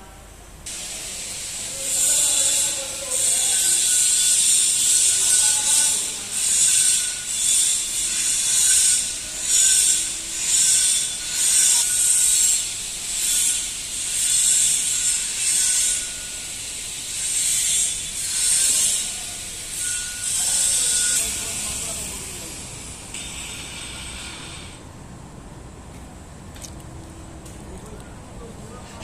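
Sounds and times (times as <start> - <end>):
hand tool rasping strokes: 17.0 - 24.8.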